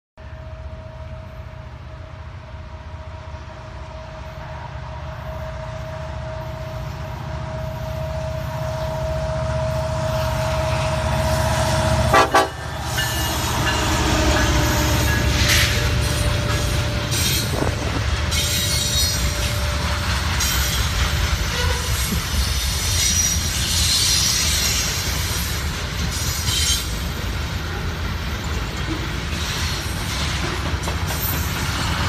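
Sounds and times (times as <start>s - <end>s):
diesel locomotive rumble: 0.2s - 32.0s
train horn: 5.2s - 20.1s, 21.4s - 22.2s.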